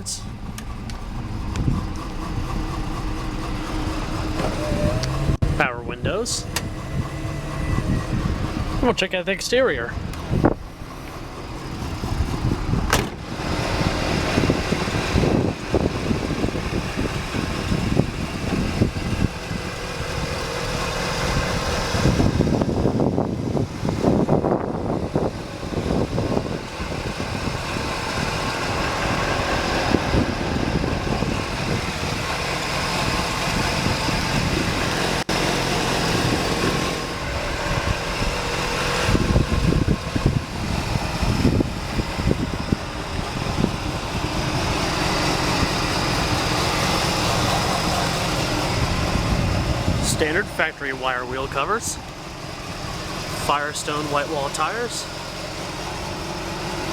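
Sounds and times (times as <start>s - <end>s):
car engine idling: 0.0s - 56.9s.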